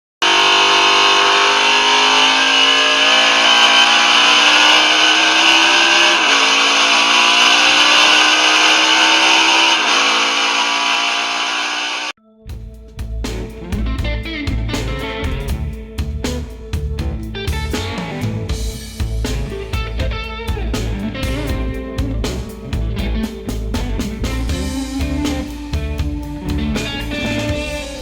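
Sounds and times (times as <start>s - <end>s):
car engine shifting through gears: 0.2s - 12.1s.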